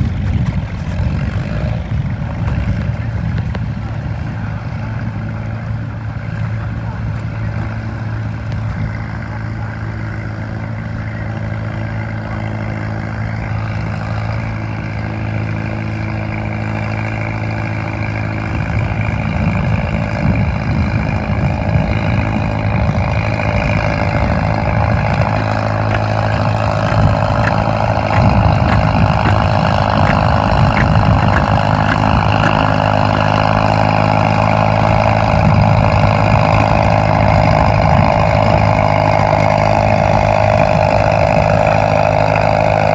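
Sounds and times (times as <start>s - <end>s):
tractor engine running under load: 0.0s - 42.9s.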